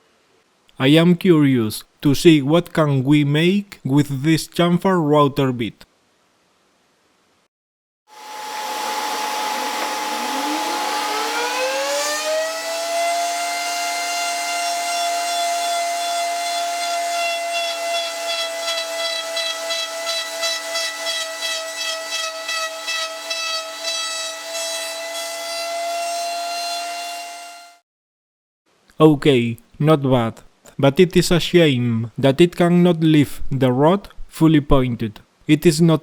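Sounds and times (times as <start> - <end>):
router whine: 8.1 - 26.0
router bit cutting wood: 8.1 - 27.8.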